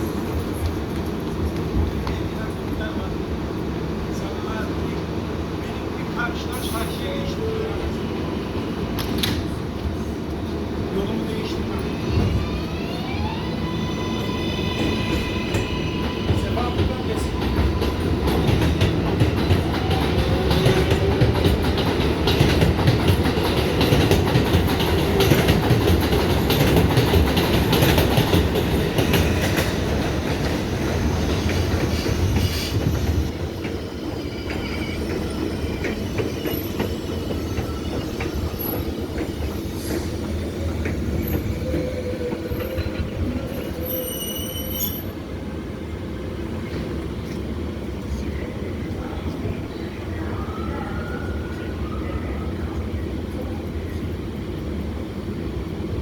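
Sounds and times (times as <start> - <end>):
subway wheels clattering: 0.0 - 56.0
high-pitched wheel squeal: 41.2 - 45.1.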